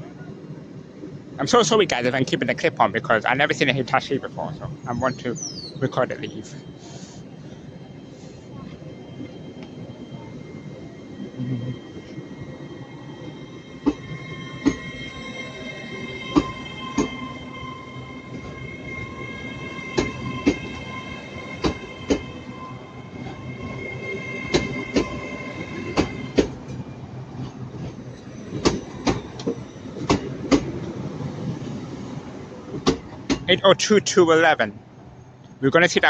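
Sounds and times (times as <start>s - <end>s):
low train rumble: 0.0s - 36.0s
steady high whine: 1.4s - 27.2s.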